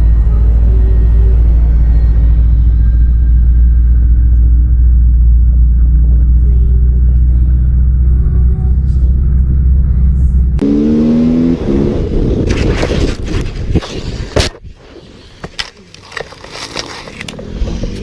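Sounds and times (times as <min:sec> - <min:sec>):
heavy motor rumble: 0:00.0 - 0:12.5
motorcycle engine running: 0:00.0 - 0:12.6.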